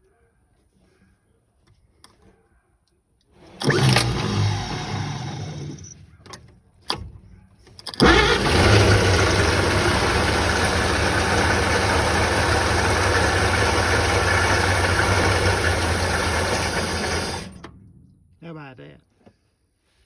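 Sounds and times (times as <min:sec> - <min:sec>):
click: 0:03.6 - 0:07.1, 0:07.8 - 0:08.6
truck engine running: 0:08.0 - 0:17.8.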